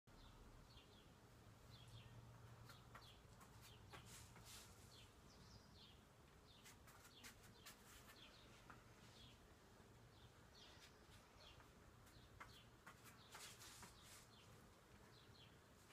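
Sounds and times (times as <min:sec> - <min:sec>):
faint birds chirping: 0:00.1 - 0:15.9.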